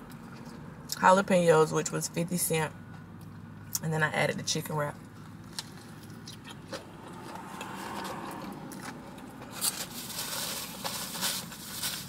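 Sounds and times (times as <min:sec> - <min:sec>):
chewing mouth noises: 0:05.5 - 0:09.6
paper wrapper crinkling: 0:09.5 - 0:12.0.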